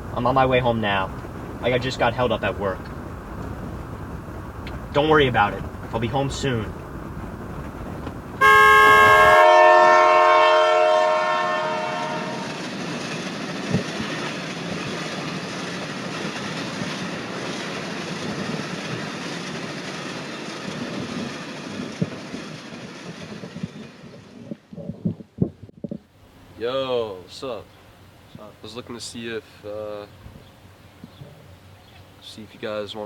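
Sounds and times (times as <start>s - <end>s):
train passing: 0.0s - 24.6s
train horn chord: 8.4s - 12.6s.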